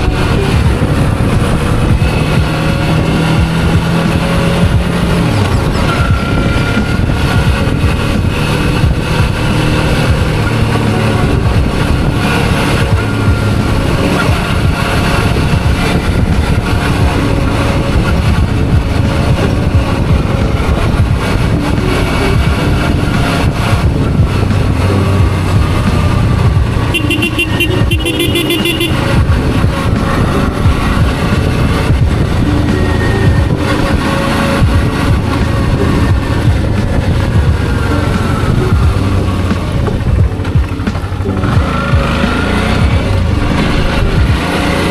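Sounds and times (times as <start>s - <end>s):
motorcycle engine running: 0.0s - 44.9s
rapidly pulsing high tone: 0.0s - 44.9s
wind and road noise: 0.0s - 44.9s.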